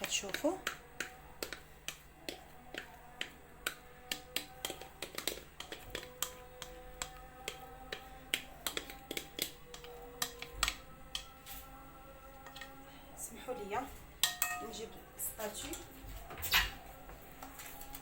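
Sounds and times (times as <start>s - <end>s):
utensil tapping kitchenware: 14.2s - 14.8s.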